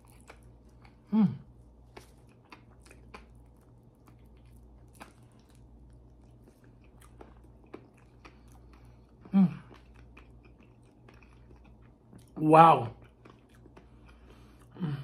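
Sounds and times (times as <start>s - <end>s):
person humming mm: 1.1s - 1.5s, 9.3s - 9.7s
wet chewing mouth clicks: 1.9s - 12.3s.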